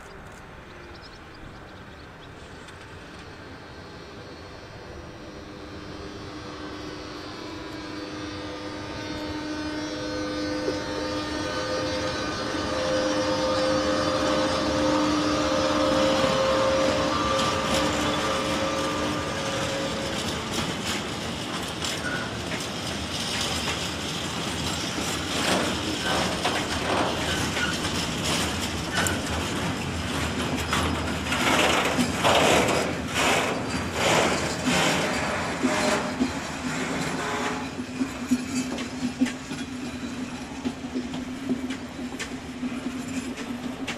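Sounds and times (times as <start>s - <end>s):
electric locomotive whine: 0.0s - 43.9s
wheels knocking over rail joints: 17.3s - 43.9s.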